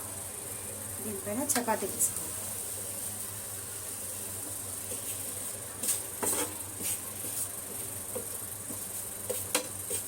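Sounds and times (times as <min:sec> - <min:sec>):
chapati hissing on hot griddle: 0:00.0 - 0:10.0
light taps on griddle: 0:08.1 - 0:09.8.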